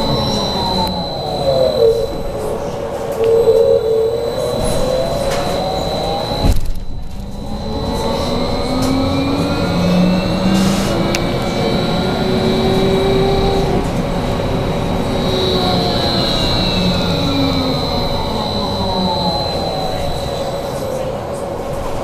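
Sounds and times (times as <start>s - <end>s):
electric drive whine: 0.0s - 22.0s
steady high whine: 0.0s - 22.0s
click: 3.1s - 9.1s, 10.6s - 11.7s.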